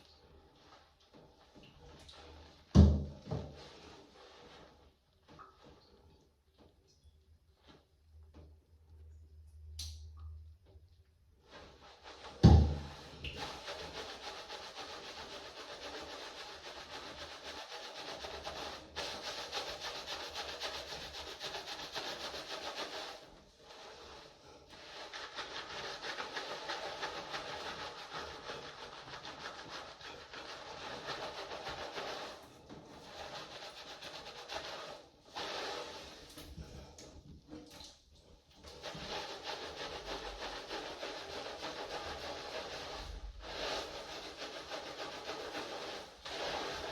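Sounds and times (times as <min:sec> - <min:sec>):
hair being rubbed: 0:13.0 - 0:36.4, 0:38.7 - 0:46.9.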